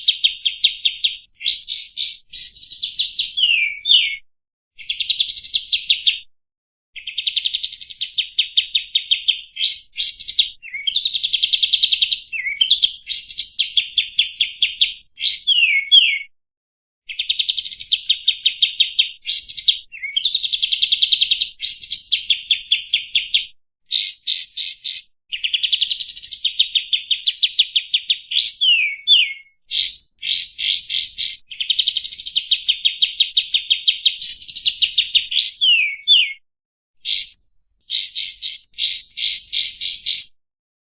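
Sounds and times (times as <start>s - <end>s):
bird singing chattering trills: 0.0s - 4.2s, 7.0s - 16.2s, 17.2s - 20.3s, 21.2s - 26.6s, 28.1s - 36.4s, 37.0s - 40.3s
bird sweeping whistles: 3.4s - 4.2s, 15.2s - 16.3s, 28.3s - 31.4s, 35.3s - 36.4s, 37.0s - 40.3s.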